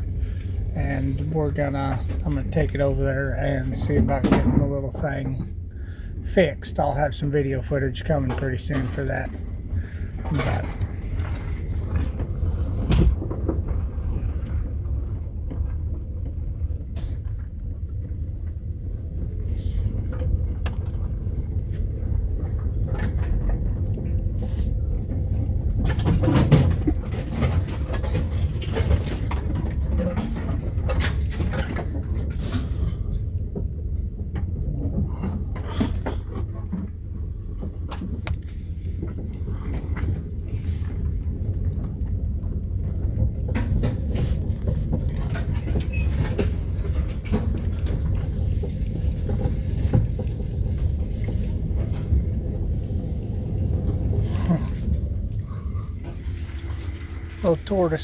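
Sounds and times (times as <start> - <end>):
knocks and rattles: 0.0 - 5.6, 25.0 - 57.6
minivan low rumble: 0.0 - 58.0.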